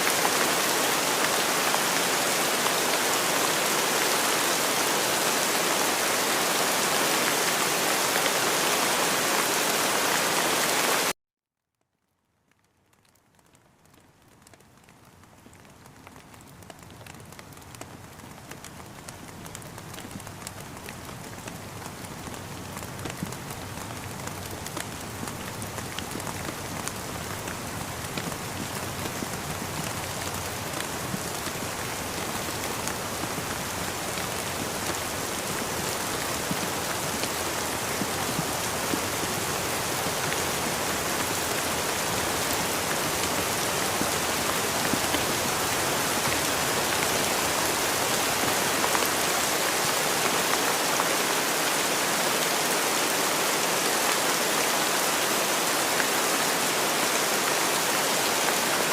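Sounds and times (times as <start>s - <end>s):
steady rainfall hiss: 0.0s - 11.1s, 13.4s - 58.9s
raindrop ticks: 12.1s - 35.3s.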